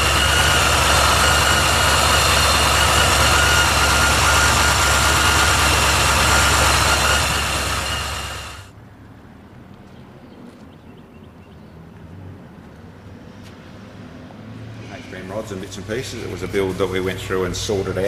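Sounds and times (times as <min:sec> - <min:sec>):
car engine idling: 0:00.0 - 0:08.7
high supercharger whine: 0:00.0 - 0:08.7.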